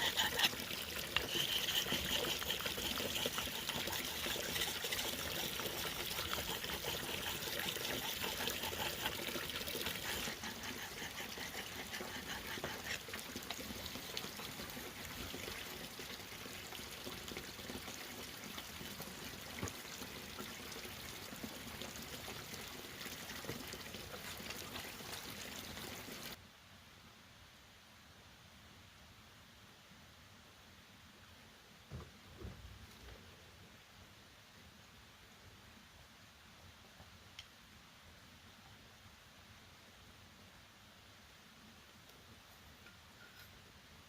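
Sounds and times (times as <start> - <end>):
water trickling: 0.0 - 26.4.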